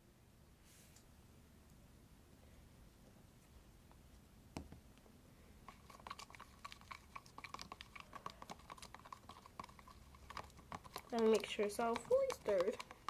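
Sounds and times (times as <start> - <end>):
utensil scraping slime in container: 5.7 - 13.0
utensil knocking on container: 10.7 - 13.0.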